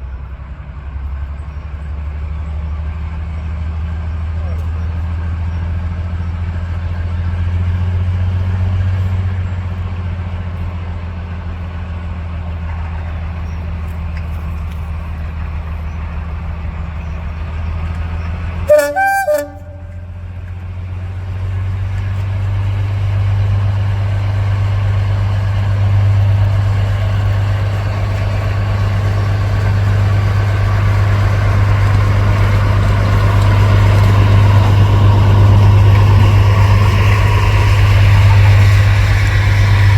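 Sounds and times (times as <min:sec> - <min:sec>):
diesel locomotive engine droning: 0:00.0 - 0:39.9
locomotive horn blast: 0:18.7 - 0:20.2.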